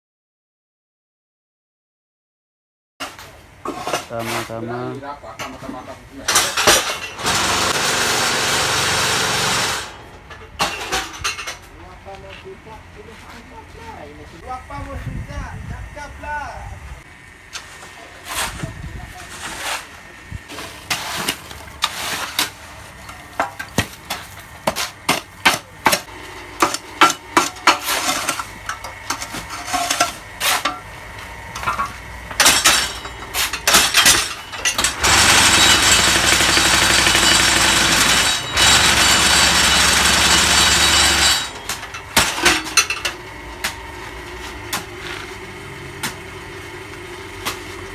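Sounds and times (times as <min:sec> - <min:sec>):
metal clanks and knocks: 0:05.4 - 0:07.8, 0:09.8 - 0:11.8, 0:20.5 - 0:45.4
loud vibrating rattle: 0:06.3 - 0:10.0, 0:31.5 - 0:43.4
motor humming: 0:22.5 - 0:47.9.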